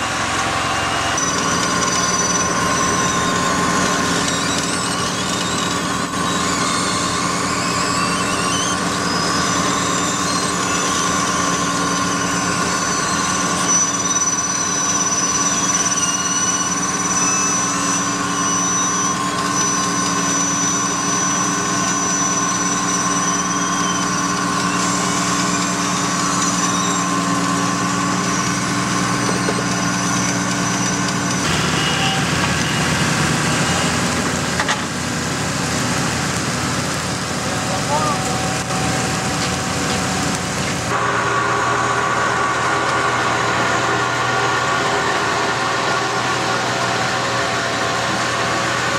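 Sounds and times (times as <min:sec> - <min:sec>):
thin high whine: 0:00.0 - 0:34.9
paving machine diesel engine: 0:00.0 - 0:48.9.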